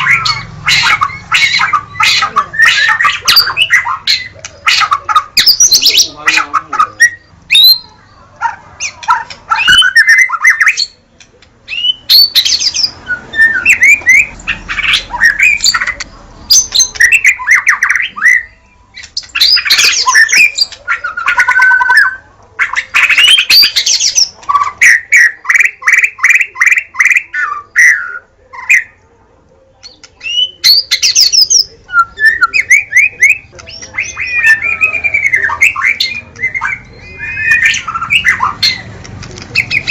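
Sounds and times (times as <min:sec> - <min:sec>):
bird singing whistles and trills: 0:07.0 - 0:08.0, 0:09.6 - 0:11.0, 0:11.7 - 0:15.9, 0:30.2 - 0:38.8.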